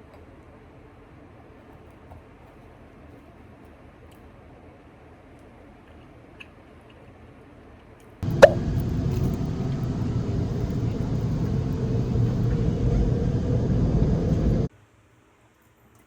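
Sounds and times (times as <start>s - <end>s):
vehicle rumbling in motion: 8.2s - 14.7s.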